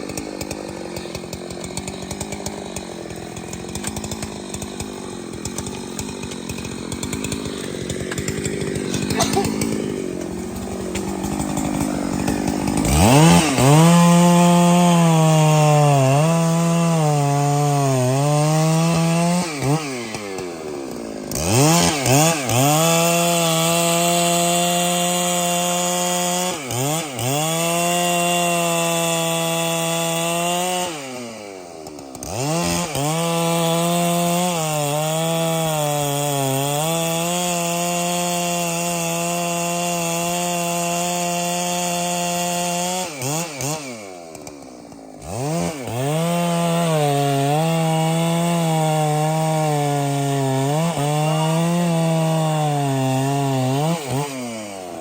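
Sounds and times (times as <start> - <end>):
chainsaw cutting a trunk: 0.0 - 55.0.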